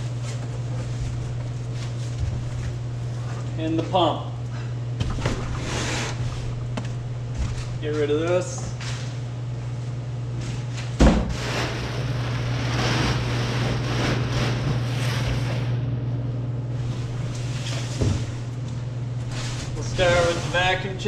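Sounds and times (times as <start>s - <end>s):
cardboard rustling and scraping: 0.0s - 3.3s, 19.2s - 20.9s
steady low hum: 0.0s - 21.0s.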